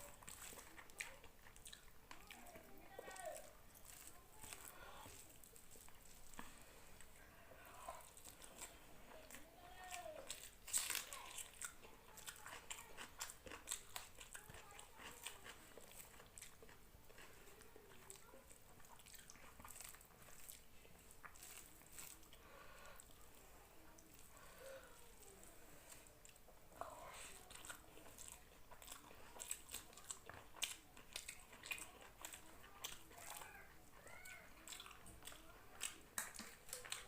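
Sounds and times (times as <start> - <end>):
person chewing food: 0.0 - 37.0
small wet clicks and crunches: 0.0 - 37.0.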